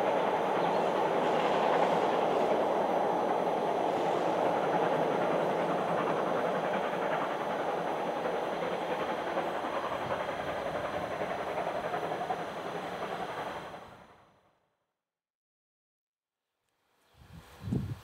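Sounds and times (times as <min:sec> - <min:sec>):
train wheels rumbling on rails: 0:00.0 - 0:14.3.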